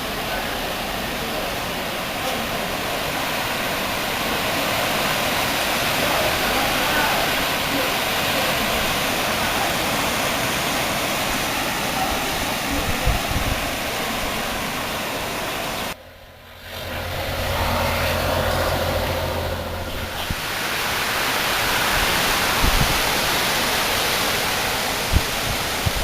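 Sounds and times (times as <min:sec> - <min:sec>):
gusting wind: 0:00.0 - 0:26.0
rain: 0:00.0 - 0:26.0
low hum: 0:16.0 - 0:20.4.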